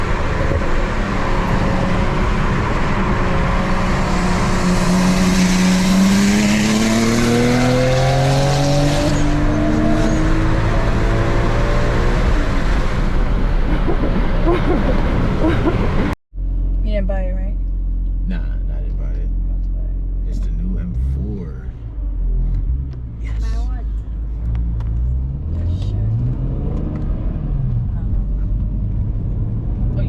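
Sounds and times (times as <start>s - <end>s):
car engine accelerating: 0.0s - 16.8s, 17.6s - 30.0s
road and wind noise: 0.0s - 30.0s.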